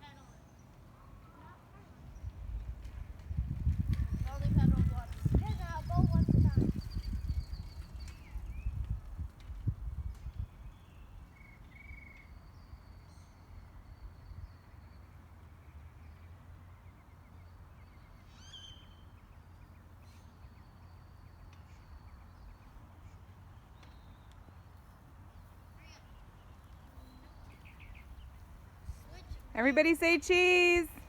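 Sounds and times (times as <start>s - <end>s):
faint bird chirps: 25.4s - 28.4s.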